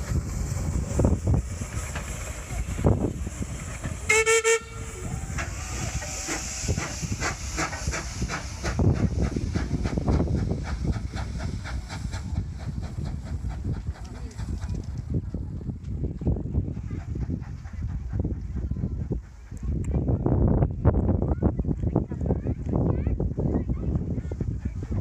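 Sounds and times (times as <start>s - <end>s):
steam locomotive chuffing: 0.0s - 21.2s, 22.2s - 25.0s
steam whistle blast: 4.1s - 5.8s.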